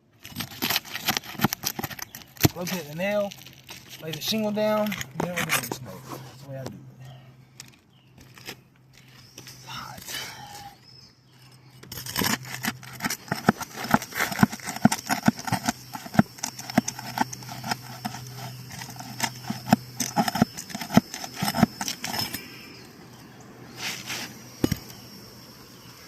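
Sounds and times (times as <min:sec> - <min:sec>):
roof shingles clicking and knocking: 0:00.2 - 0:05.8, 0:11.8 - 0:22.4.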